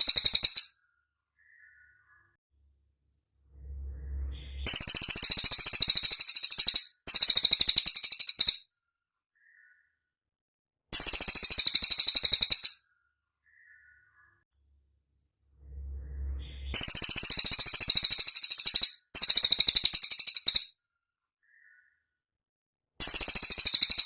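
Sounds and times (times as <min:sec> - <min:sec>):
faint low rumble: 0:02.6 - 0:05.6, 0:14.6 - 0:17.5.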